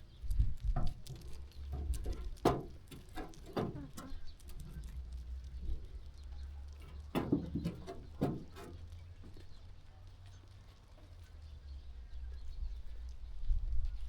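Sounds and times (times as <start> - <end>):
sheep hooves shuffling: 0.0 - 13.2.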